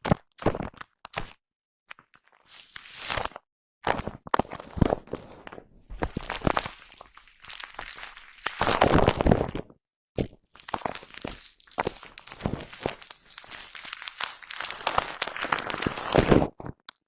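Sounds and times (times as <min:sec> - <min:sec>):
scratching on microphone foam: 0:03.9 - 0:09.6, 0:10.8 - 0:16.8.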